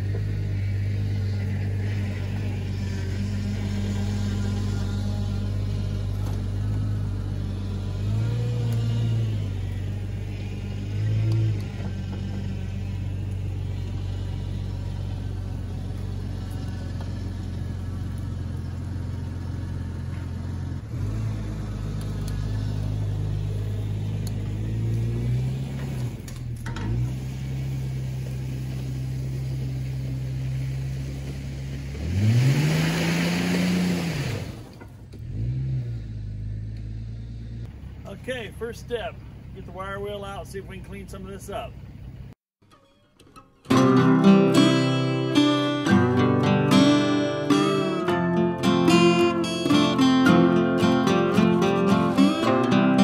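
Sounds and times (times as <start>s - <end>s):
tyres spraying mud: 0.0s - 34.8s
car engine revving: 0.0s - 42.4s, 43.7s - 53.0s.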